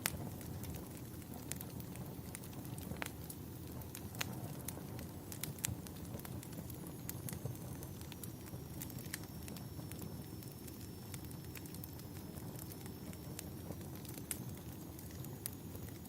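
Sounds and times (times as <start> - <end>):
bonfire crackling and rumbling: 0.0 - 16.0.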